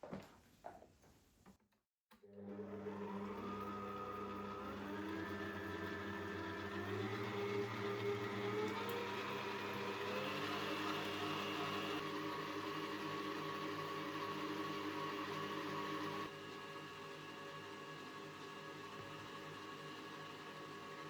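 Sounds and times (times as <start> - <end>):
motor humming and whirring: 2.5 - 16.3.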